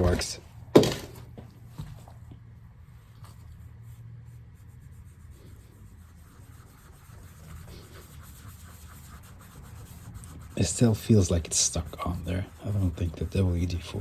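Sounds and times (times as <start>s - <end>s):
low steady hum: 0.0s - 14.0s
rubbing and scratching on keyboard: 3.0s - 14.0s.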